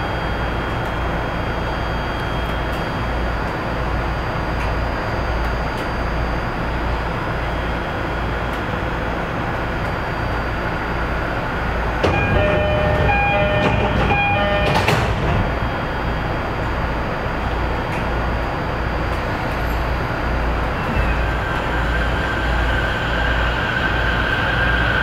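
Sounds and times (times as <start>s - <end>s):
train rumbling: 8.0s - 25.0s
ringing pulsing bell: 12.1s - 15.0s.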